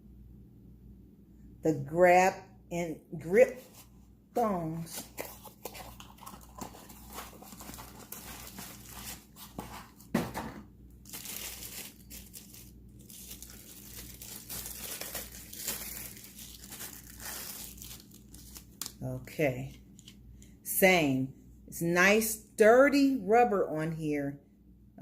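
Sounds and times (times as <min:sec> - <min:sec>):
packaging wrap crinkling and tearing: 0:04.9 - 0:10.1, 0:11.0 - 0:19.0
thump: 0:10.1 - 0:10.6.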